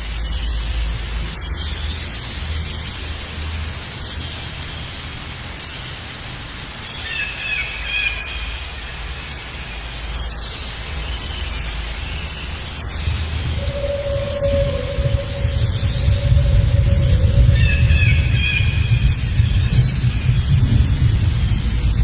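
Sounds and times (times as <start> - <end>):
outdoor ambience hiss: 0.0 - 22.0
low rumble: 12.7 - 22.0
warbling bird call: 13.3 - 19.2.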